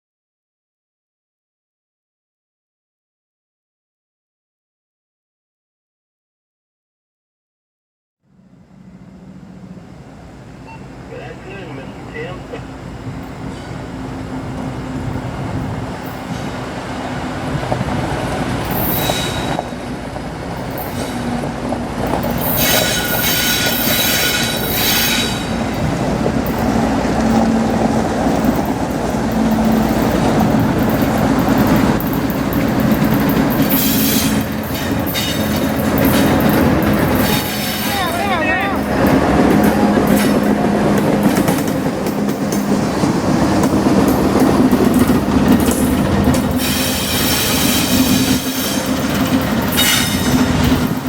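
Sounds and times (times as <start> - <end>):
train rumble and wheel clatter: 8.3 - 51.0
high-pitched wheel squeal: 18.7 - 19.7, 33.7 - 34.5, 46.6 - 49.1.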